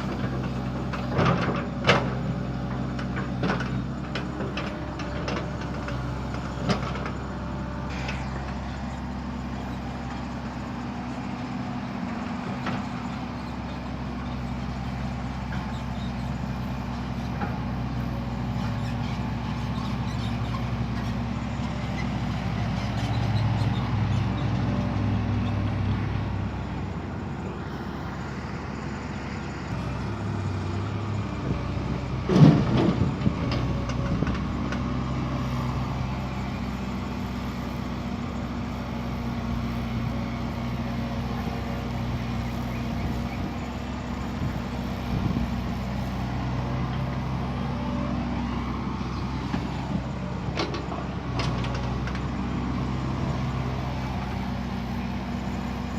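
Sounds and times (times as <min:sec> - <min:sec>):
diesel earthmoving machinery running: 0:00.0 - 0:55.9.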